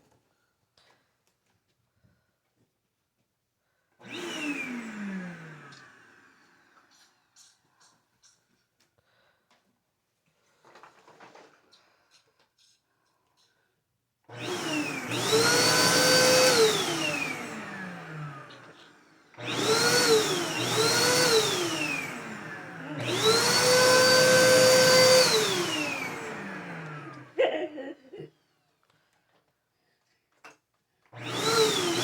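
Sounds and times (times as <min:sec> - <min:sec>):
vacuum cleaner motor whine: 0:04.0 - 0:06.9, 0:14.3 - 0:27.5, 0:31.1 - 0:32.0.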